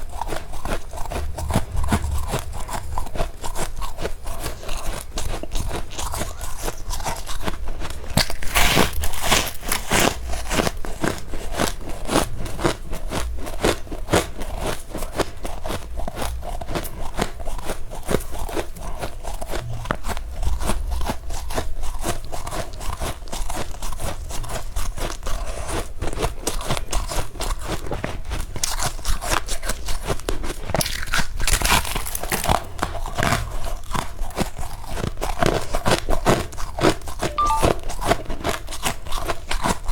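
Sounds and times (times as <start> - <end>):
chewing crunchy frost: 0.0 - 37.4.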